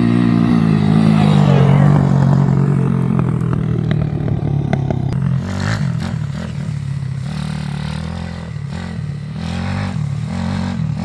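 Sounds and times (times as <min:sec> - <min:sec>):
motorbike engine idling: 0:00.0 - 0:09.4.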